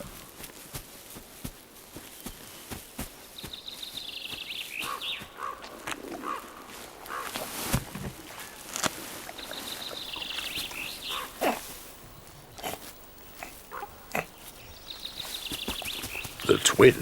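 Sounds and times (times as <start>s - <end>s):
brief animal noises: 9.2s - 11.9s.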